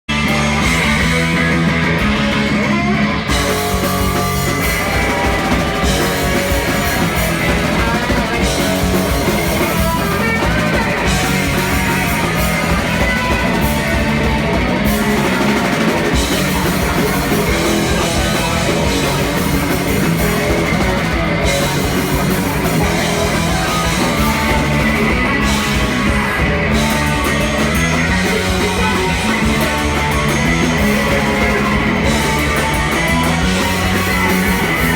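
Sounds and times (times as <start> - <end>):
punk band playing live: 0.1 - 34.9.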